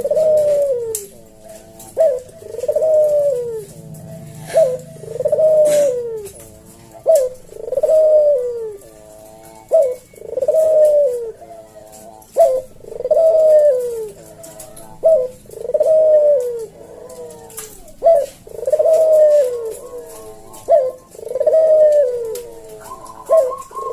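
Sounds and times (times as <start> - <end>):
dove cooing: 0.0 - 23.9.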